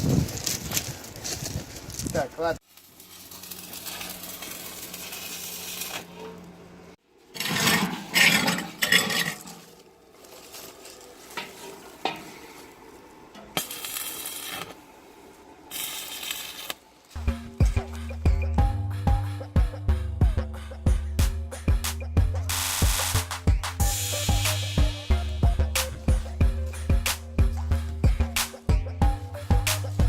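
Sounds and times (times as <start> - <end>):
arc welding sizzling: 2.6 - 6.6, 13.5 - 17.2, 22.5 - 27.2.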